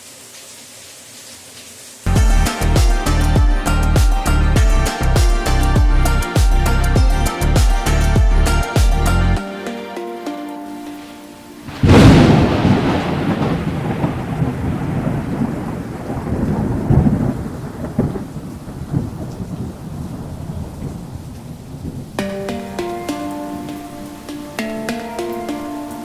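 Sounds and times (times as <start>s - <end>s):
rain: 0.0s - 26.0s
thunder crack and rumble: 11.7s - 22.2s.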